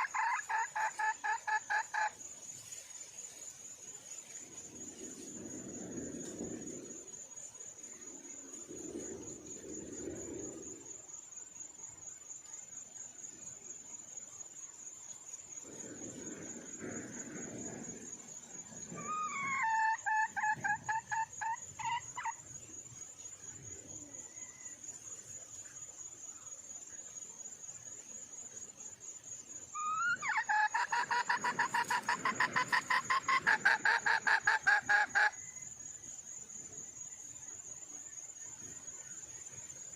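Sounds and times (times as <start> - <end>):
junglefowl hen calling: 0.0 - 2.2, 19.0 - 22.4, 29.8 - 35.5.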